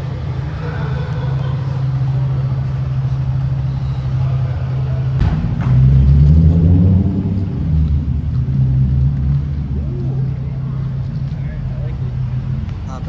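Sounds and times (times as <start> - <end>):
car engine idling: 0.0 - 13.0
sharp knock: 5.2 - 6.0.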